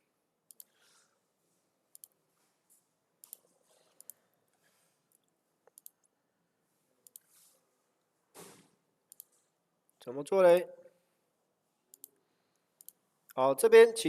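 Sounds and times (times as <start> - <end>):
computer mouse clicks: 0.5 - 0.8, 1.9 - 2.2, 3.2 - 4.2, 5.1 - 6.1, 7.0 - 7.3, 9.1 - 9.4, 11.9 - 12.2, 12.8 - 13.0.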